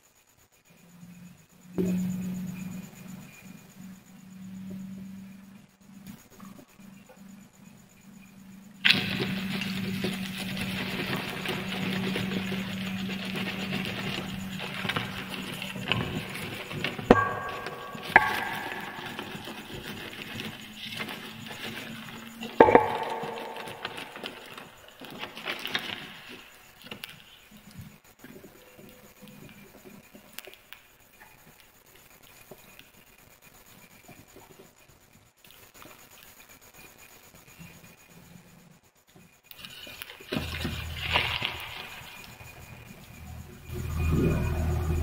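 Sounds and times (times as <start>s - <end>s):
fire crackling: 8.8s - 28.0s, 39.5s - 45.0s
sharp ringing crashes: 16.9s - 20.2s, 22.6s - 24.8s.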